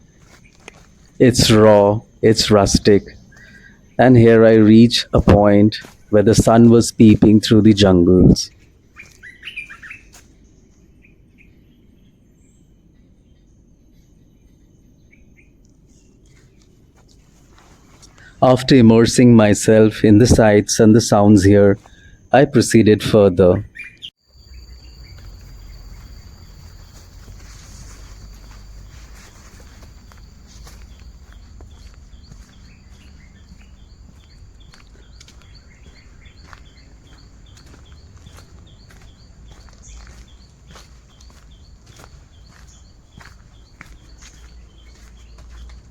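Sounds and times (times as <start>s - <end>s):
bird short high chirp: 9.0s - 10.1s, 23.7s - 26.9s
short bird chirps: 9.0s - 10.1s
high-pitched insect drone: 24.2s - 43.4s.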